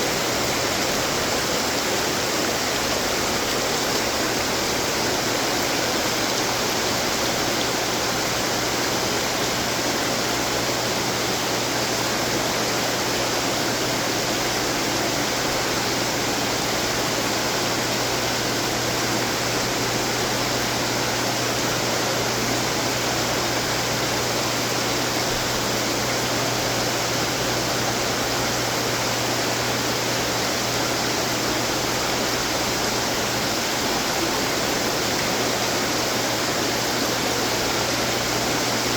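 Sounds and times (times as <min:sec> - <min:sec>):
water splashing from fountains: 0:00.0 - 0:38.9.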